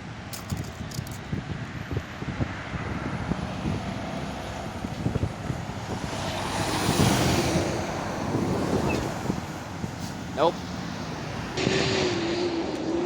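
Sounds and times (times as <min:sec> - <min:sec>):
wind buffeting microphone: 0:00.0 - 0:12.3
vehicle engine rumble: 0:00.0 - 0:13.0.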